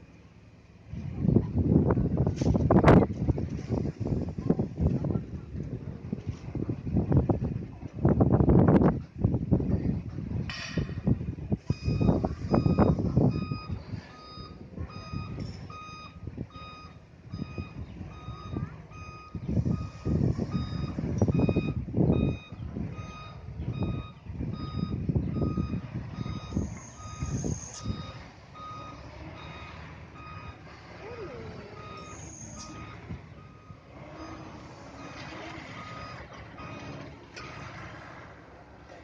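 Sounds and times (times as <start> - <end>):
diesel engine running: 0.0 - 39.0
truck reversing alarm beeping: 10.9 - 38.7.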